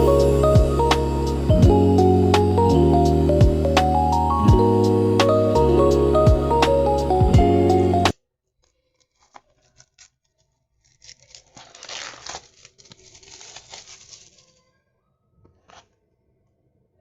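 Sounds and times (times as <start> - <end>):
packaging ripping and crackling: 8.6 - 14.8.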